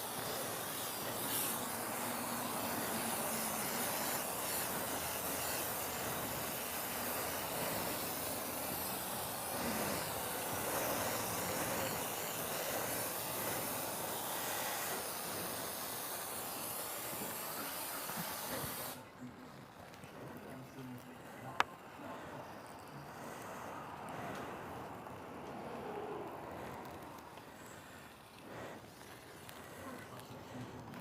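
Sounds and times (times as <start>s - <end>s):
foam lance spraying hiss: 0.0s - 31.0s.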